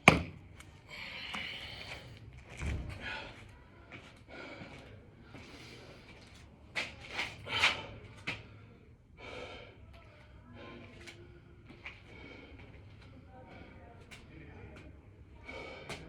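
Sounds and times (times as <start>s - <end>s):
man breathing hard: 0.8s - 2.3s, 4.2s - 6.2s, 7.4s - 13.9s, 15.4s - 16.0s.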